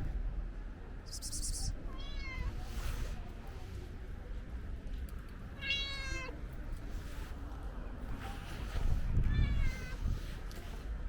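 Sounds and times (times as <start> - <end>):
cat meowing: 2.0 - 2.5, 5.6 - 6.3, 9.2 - 10.0.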